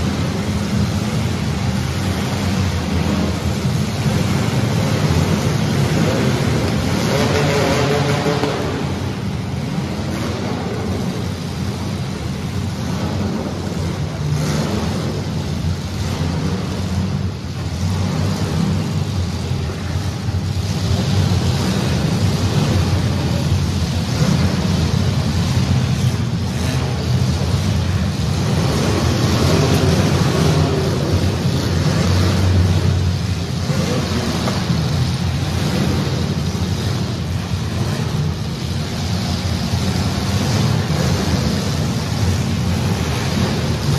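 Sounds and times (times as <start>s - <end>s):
car engines revving: 0.0s - 43.9s.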